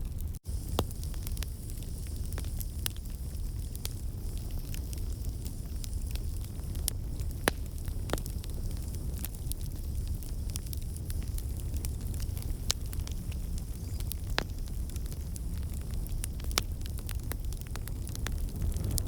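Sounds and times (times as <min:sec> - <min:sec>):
fire crackling and popping: 0:00.0 - 0:19.0
fire flames rumbling: 0:00.0 - 0:19.0.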